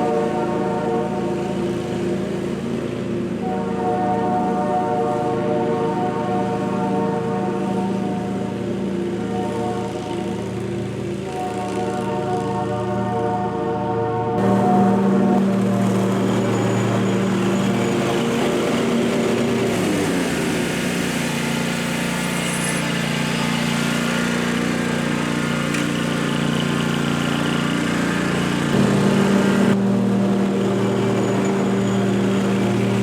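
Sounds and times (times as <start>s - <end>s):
small engine running: 0.0s - 13.3s, 14.4s - 33.0s.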